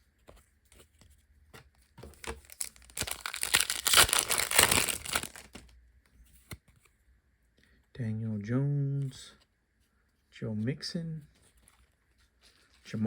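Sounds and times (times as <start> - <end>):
foil wrapper crinkling and tearing: 2.1 - 5.7.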